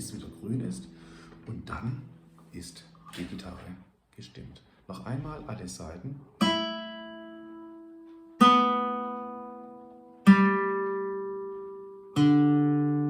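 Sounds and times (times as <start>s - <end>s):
guitar strings plucked: 0.0s - 3.6s, 6.4s - 13.0s.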